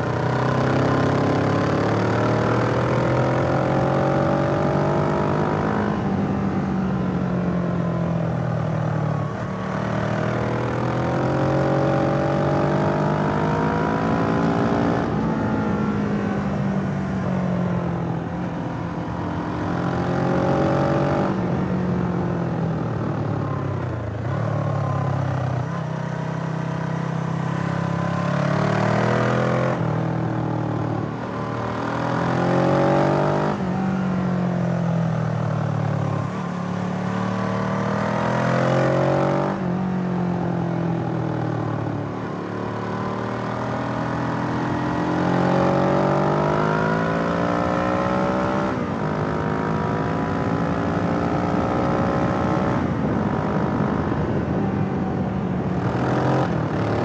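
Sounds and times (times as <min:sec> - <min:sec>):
motorcycle engine revving: 0:09.2 - 0:16.4, 0:22.8 - 0:40.0, 0:41.1 - 0:54.6.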